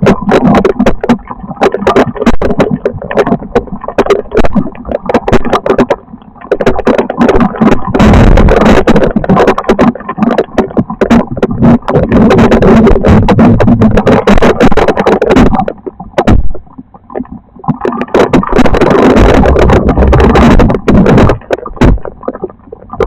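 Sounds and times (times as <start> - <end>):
wind buffeting microphone: 6.6 - 23.0.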